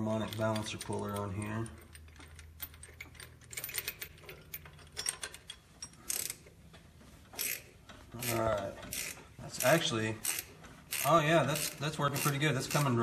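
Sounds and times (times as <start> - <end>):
ratchet clicking: 0.2 - 6.4, 7.4 - 13.0.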